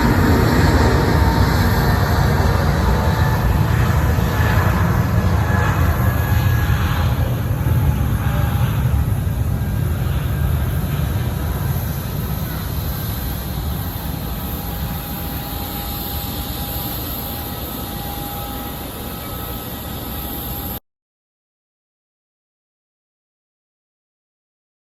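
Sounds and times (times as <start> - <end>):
jet engine rumble and hiss: 0.0 - 20.8.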